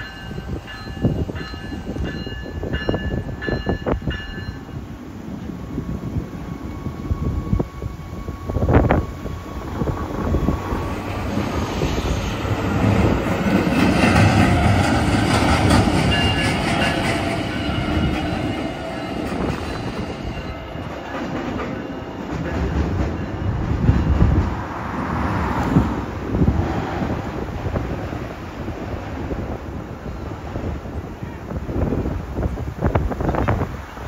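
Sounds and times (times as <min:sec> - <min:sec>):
light rail train rolling past: 0:00.0 - 0:34.0.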